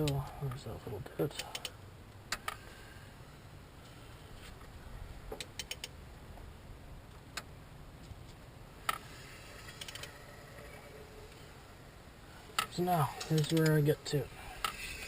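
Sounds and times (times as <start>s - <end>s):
metal tools clicking on engine: 0.0s - 0.6s, 1.3s - 2.6s, 12.5s - 13.9s
faint steady hum: 0.0s - 15.0s.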